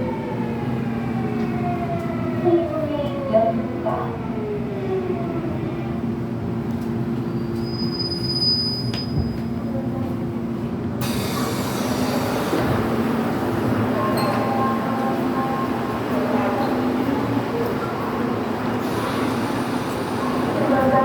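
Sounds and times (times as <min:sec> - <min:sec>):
high wheel squeal: 0:07.5 - 0:09.2
train rushing running noise: 0:11.0 - 0:21.0.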